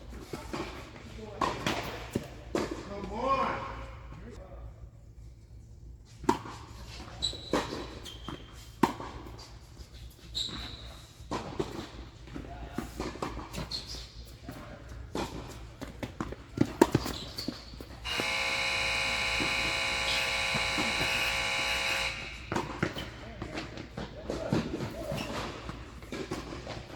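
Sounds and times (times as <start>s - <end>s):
shoe squeaks on court: 6.9s - 9.0s, 10.0s - 11.5s, 16.7s - 18.4s, 24.9s - 25.9s
loud steady buzzing tone: 18.0s - 22.8s
tennis ball bounces: 19.4s - 23.1s.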